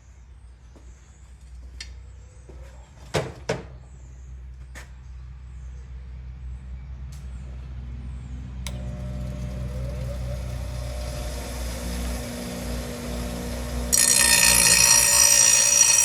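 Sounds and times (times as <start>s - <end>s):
motor running: 8.7s - 16.0s.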